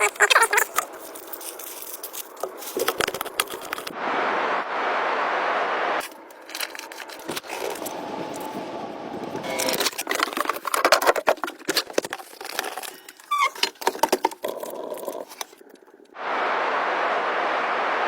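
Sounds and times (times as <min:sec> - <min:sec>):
hard objects clicking and knocking: 0:00.1 - 0:03.9, 0:09.3 - 0:15.8
short squeak: 0:13.3 - 0:13.6.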